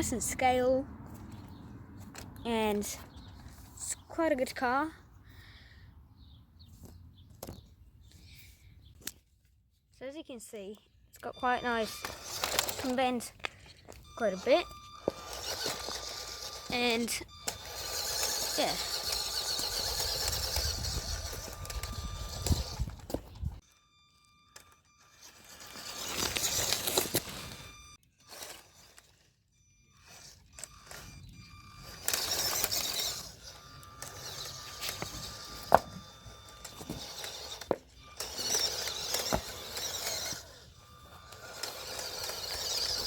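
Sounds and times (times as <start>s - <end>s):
toy car motor whirring: 11.2s - 43.0s.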